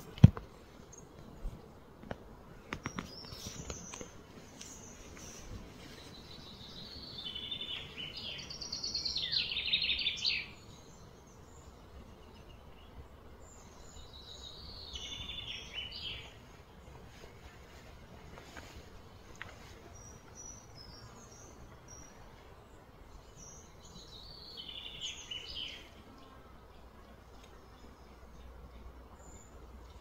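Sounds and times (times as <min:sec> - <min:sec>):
faint steady hum: 0:00.0 - 0:30.0
bird singing trilled phrases: 0:06.2 - 0:16.4, 0:23.1 - 0:25.9.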